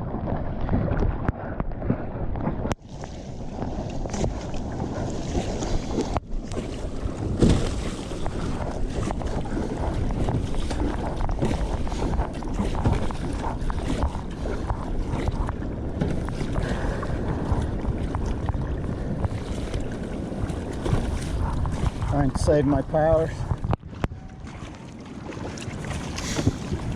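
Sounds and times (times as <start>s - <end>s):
surf and churning water: 0.0s - 26.9s
wind buffeting microphone: 0.0s - 26.9s.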